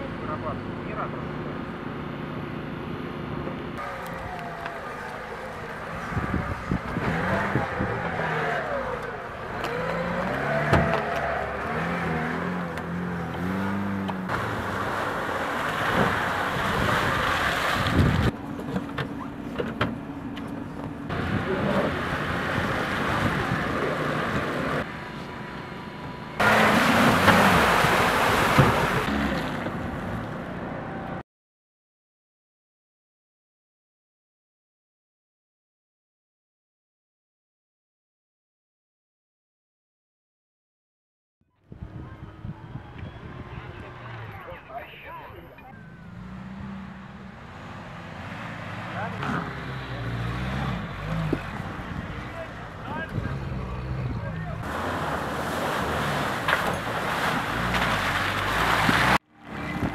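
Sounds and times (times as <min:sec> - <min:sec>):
car engine revving: 0:03.8 - 0:17.5, 0:26.3 - 0:30.3, 0:45.7 - 0:59.9.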